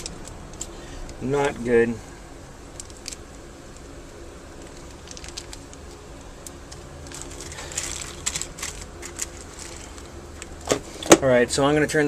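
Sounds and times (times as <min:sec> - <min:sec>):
faint steady hum: 0:00.0 - 0:12.0
plastic bags crinkling: 0:02.7 - 0:10.7.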